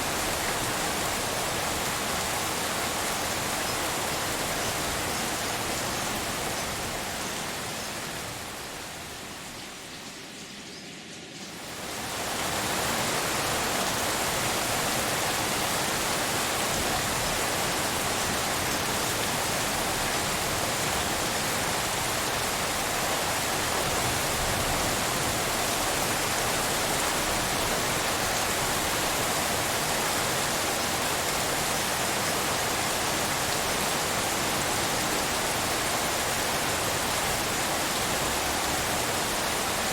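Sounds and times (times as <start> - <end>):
hiss of rain: 0.0 - 39.9.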